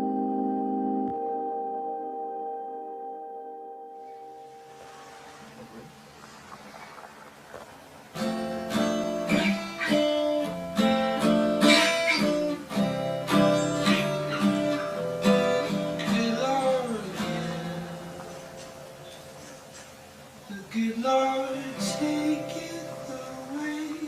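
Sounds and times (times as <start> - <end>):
sliding guitar note: 0.0 - 19.4
acoustic guitar strumming: 0.0 - 24.0.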